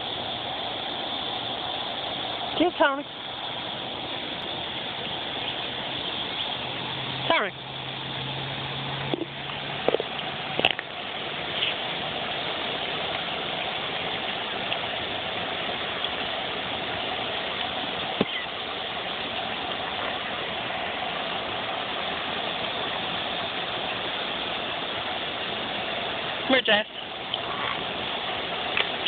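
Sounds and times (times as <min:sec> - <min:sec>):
cicadas droning: 0:00.0 - 0:29.0.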